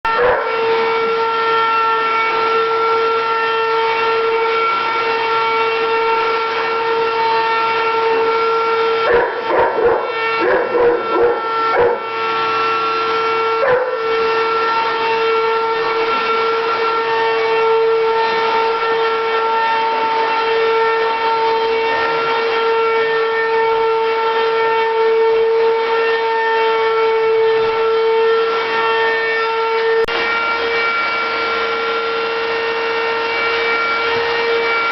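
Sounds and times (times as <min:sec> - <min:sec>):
vacuum cleaner running: 0:00.0 - 0:34.9
dog barking: 0:00.2 - 0:00.6, 0:09.0 - 0:12.1, 0:13.6 - 0:14.1.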